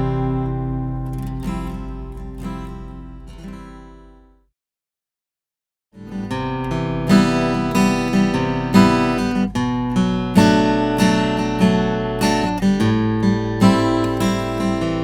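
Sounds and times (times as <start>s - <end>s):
acoustic guitar strummed chords: 0.0s - 4.3s, 6.0s - 15.0s.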